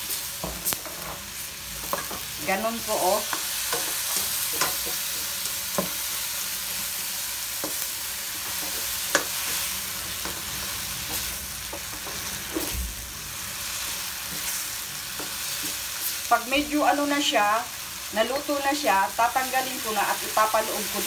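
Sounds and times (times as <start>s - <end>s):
vegetables sizzling in a wok: 0.0s - 21.0s
spatula tapping and scraping pan: 1.8s - 2.3s, 3.2s - 6.0s, 8.4s - 12.7s.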